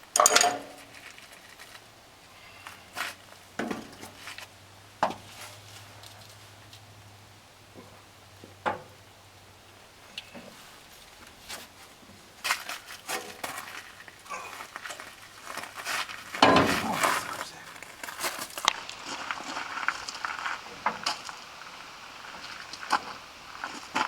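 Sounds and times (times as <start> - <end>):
metal knocks and clanks: 16.3 - 17.4.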